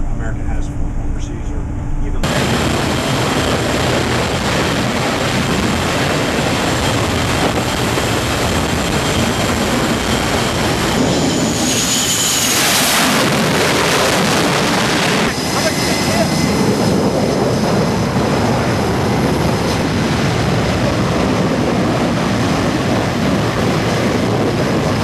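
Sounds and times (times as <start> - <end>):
faint high whine: 0.0 - 17.2
jet engines roaring: 0.0 - 25.0.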